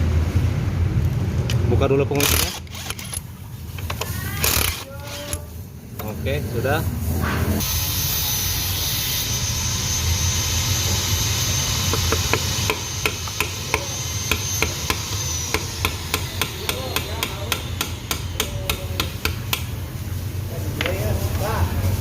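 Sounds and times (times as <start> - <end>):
low hum: 6.9 - 16.7
hammer tapping on metal: 11.9 - 19.7.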